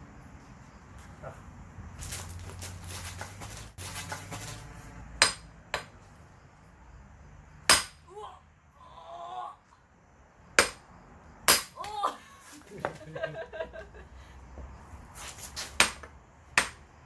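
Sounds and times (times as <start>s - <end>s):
metallic strikes splitting firewood: 5.2s - 6.1s, 7.6s - 8.1s, 10.6s - 12.0s, 15.6s - 16.9s.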